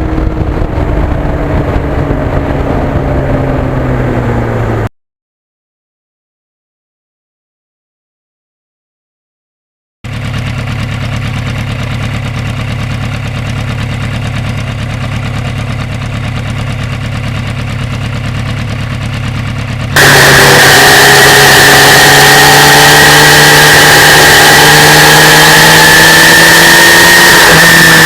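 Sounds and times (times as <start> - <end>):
motorcycle engine: 0.0 - 4.9, 10.1 - 28.0.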